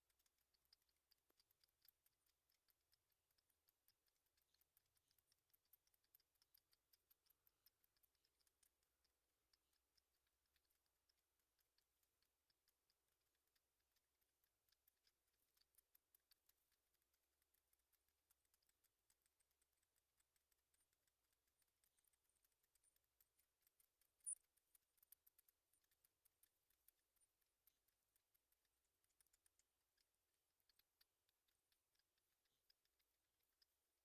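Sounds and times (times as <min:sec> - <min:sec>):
faint high-pitched ticks and clicks: 0:00.0 - 0:34.0.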